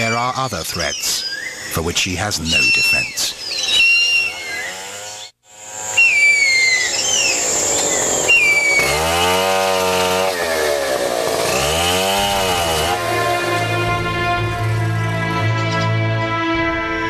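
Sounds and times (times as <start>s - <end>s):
high falling bird calls: 0.0s - 9.7s
chainsaw revving: 3.8s - 15.4s.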